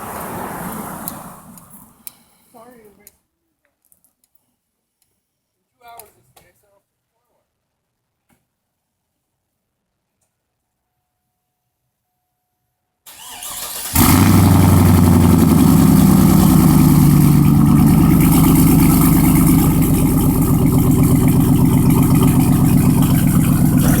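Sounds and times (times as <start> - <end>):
starter cranking: 13.2 - 24.0
engine idling loudly: 13.9 - 24.0.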